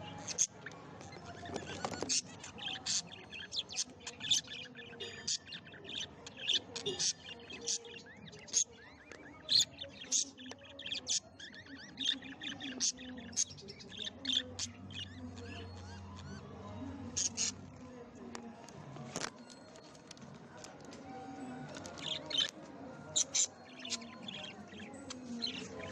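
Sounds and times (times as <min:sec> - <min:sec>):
parrots chirping: 0:00.0 - 0:17.6.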